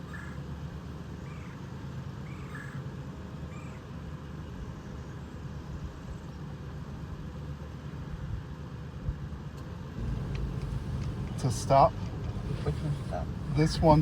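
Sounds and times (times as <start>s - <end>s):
truck engine humming: 10.0s - 14.0s.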